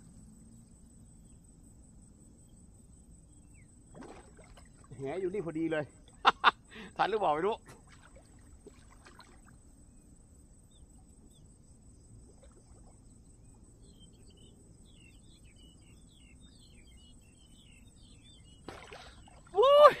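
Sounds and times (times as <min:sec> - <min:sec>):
small birds twittering: 0:09.9 - 0:20.0.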